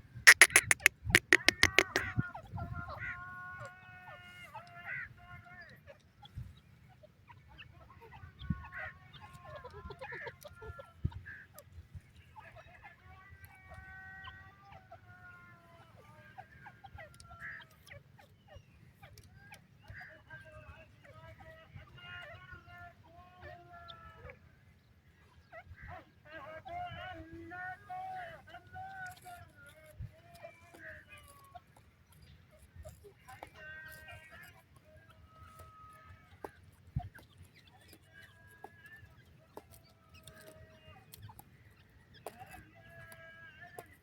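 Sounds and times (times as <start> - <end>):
francolins calling: 0.3 - 2.1.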